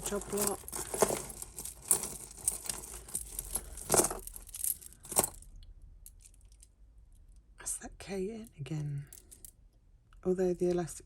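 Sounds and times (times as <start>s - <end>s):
sharp metallic clinks: 0.0s - 5.4s
jewellery rustling: 0.0s - 6.6s, 9.1s - 9.6s.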